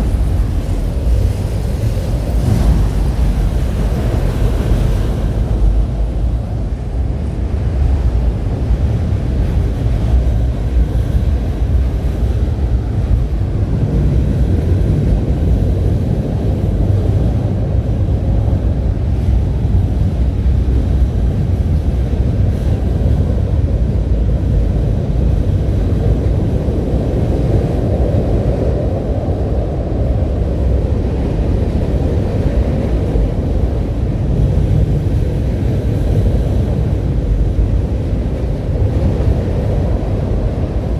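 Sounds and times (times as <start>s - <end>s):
low vehicle rumble: 0.0s - 7.9s
wind noise on microphone: 0.0s - 40.9s.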